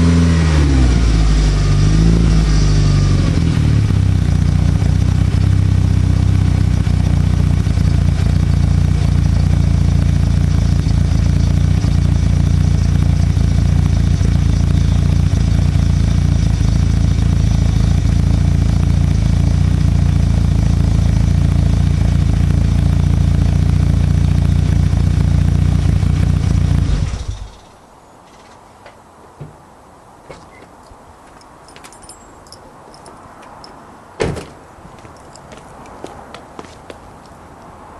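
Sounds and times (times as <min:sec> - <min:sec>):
car engine idling: 0:02.4 - 0:27.6.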